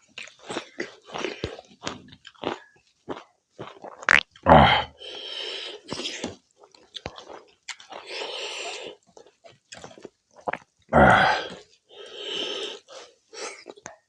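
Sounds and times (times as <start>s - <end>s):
chewing and mouth sounds: 0.0s - 14.0s
vocal sound: 4.4s - 5.0s, 10.9s - 11.6s.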